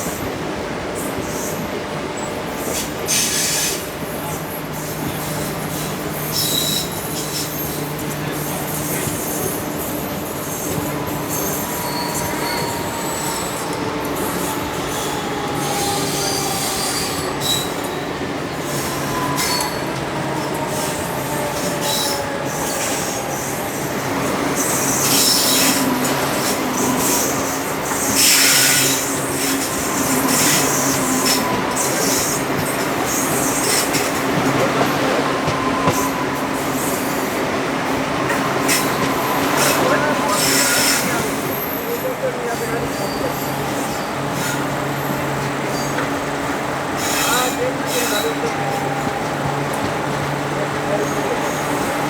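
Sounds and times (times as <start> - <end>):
train wheels rumbling on rail: 0.0 - 52.0
thin squealing tones: 4.8 - 37.2.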